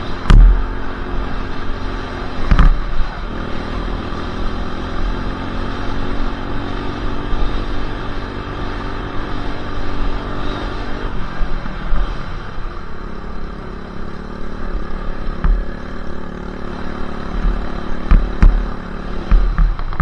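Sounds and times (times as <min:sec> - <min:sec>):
dirt bike engine running: 0:00.0 - 0:20.0
sharp knock: 0:00.2 - 0:01.0.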